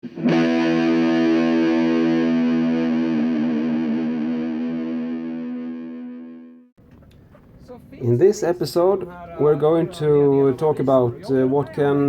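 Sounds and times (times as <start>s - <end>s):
distorted electric guitar chord: 0.0s - 6.7s.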